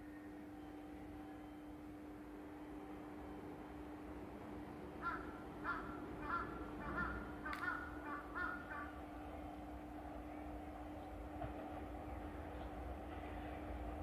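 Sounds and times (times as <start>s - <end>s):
faint steady hum: 0.0s - 14.0s
bird calling: 5.0s - 9.0s.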